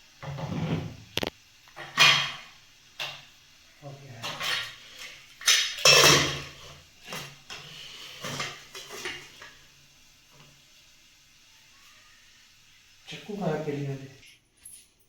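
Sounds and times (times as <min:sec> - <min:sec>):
kitchen utensils and pots clattering: 0:00.2 - 0:03.3, 0:04.1 - 0:09.7.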